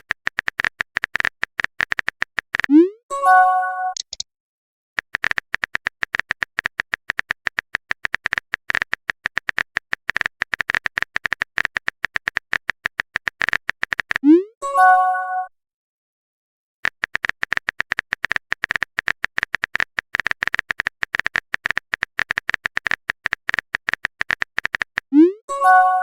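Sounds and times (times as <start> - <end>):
rapid typing clicks: 0.0 - 2.7, 4.0 - 4.2, 5.0 - 14.2, 16.8 - 25.1.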